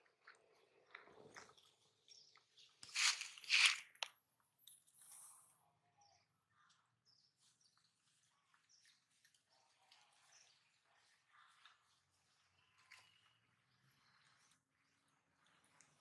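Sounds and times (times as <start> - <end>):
small birds chirping: 0.0 - 16.0
loud scratchy noises: 2.8 - 4.0.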